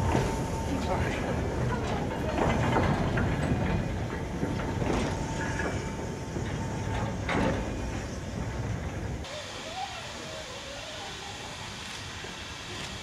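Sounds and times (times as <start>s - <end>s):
wheels clicking over rail joints: 0.0s - 9.3s
train wheels rumbling on rails: 0.0s - 13.0s.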